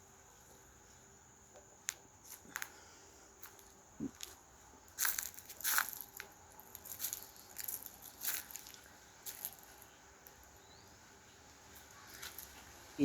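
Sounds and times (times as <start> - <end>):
soft crackles and rustles: 1.8 - 10.8, 11.7 - 12.8.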